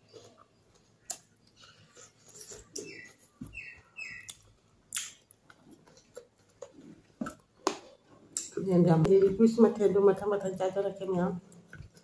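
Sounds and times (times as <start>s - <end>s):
person chewing with mouth smacks: 0.1s - 3.4s, 4.2s - 8.5s.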